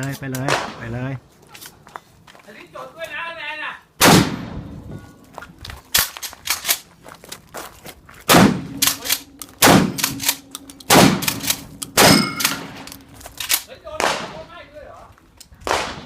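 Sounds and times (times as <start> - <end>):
hard sharp blows with low ring: 8.3 - 13.1.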